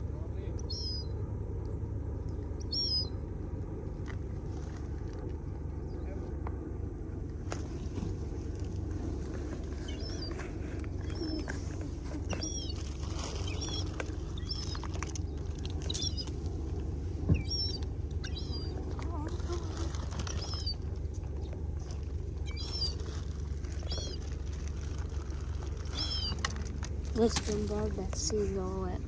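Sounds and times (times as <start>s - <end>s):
steady low rumble: 0.0s - 29.0s
small birds chirping: 0.4s - 1.2s, 2.6s - 3.2s, 7.5s - 24.6s, 25.8s - 26.5s, 27.1s - 29.0s.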